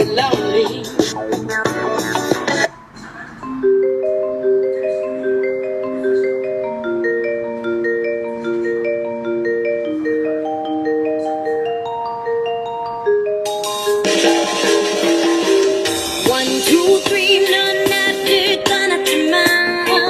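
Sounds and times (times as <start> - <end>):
calm mallet percussion melody: 3.4 - 20.0
loud dense music: 13.5 - 17.2.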